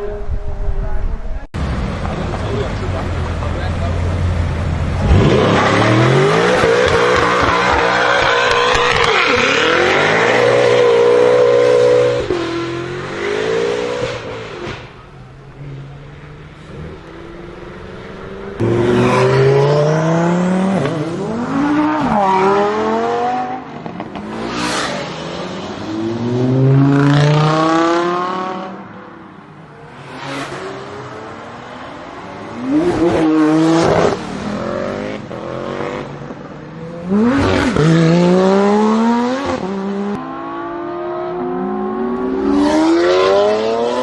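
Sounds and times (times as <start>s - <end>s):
car engines accelerating hard: 1.5s - 28.9s, 29.8s - 44.0s.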